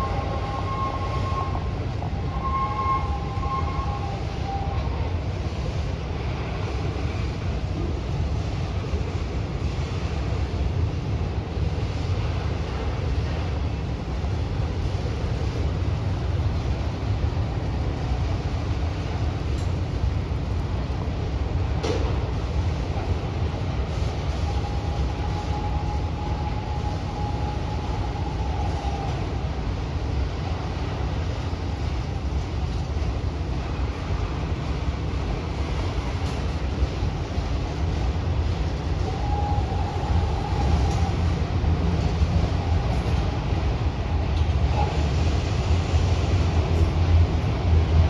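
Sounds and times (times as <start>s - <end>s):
thin steady whine: 0.0s - 16.4s
wheels rumbling on rail: 0.0s - 48.0s.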